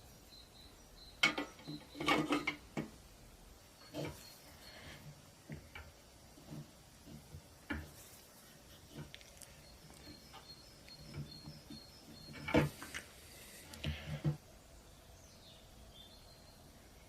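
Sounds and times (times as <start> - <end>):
faint high chirping: 0.0 - 2.6, 3.6 - 5.7, 8.2 - 13.8, 14.6 - 17.0.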